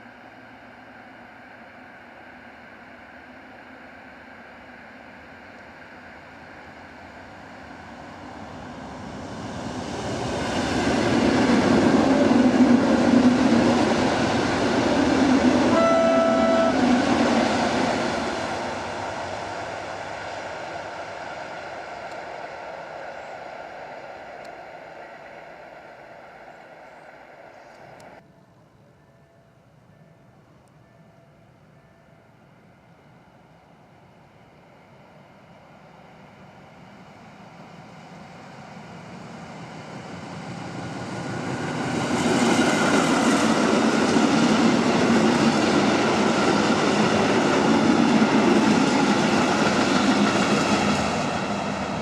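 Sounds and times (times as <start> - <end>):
commuter train passing: 0.0 - 52.0
train horn: 15.6 - 17.6.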